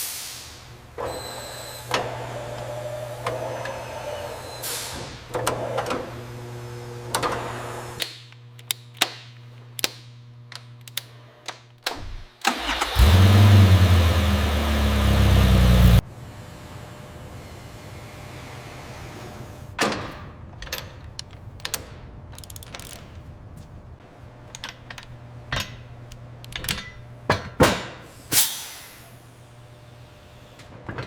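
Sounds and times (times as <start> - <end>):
car engine running loudly: 12.8 - 16.0
metallic clicks and taps: 20.6 - 23.7, 24.5 - 27.0.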